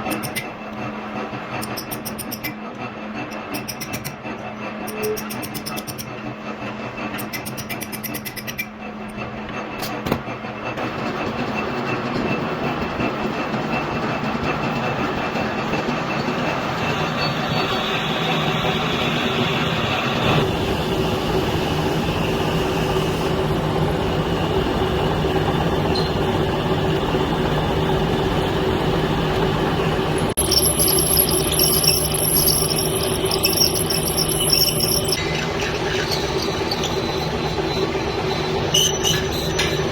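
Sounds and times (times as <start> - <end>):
metal lathe humming and grinding: 25.3 - 39.4
high-pitched ringing: 30.2 - 35.2.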